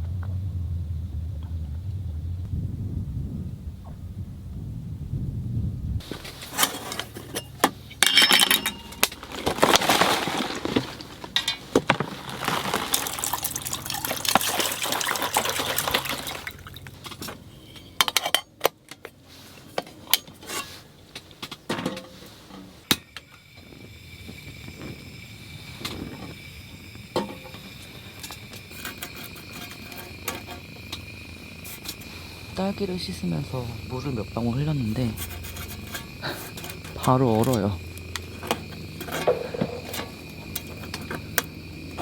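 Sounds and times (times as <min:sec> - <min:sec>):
dishware clinking: 0:06.6 - 0:09.1
water pouring and splashing: 0:09.2 - 0:17.2.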